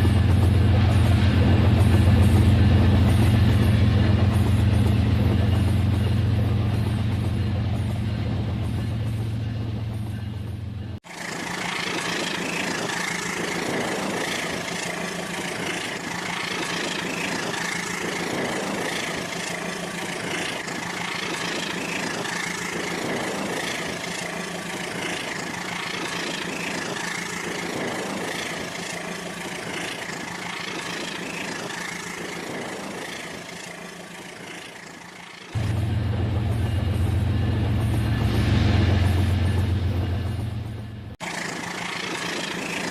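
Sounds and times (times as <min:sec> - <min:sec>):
pulsing clatter on track: 0:00.0 - 0:42.9
low hum: 0:35.1 - 0:42.9.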